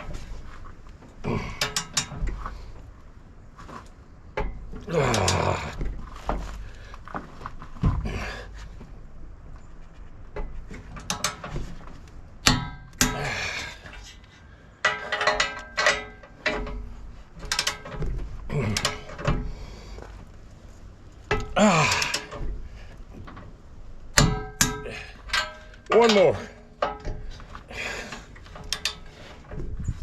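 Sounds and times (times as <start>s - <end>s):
hand tools clanking on steel: 0.0s - 2.7s, 4.4s - 8.5s, 10.4s - 20.3s, 21.2s - 23.5s, 24.1s - 29.9s.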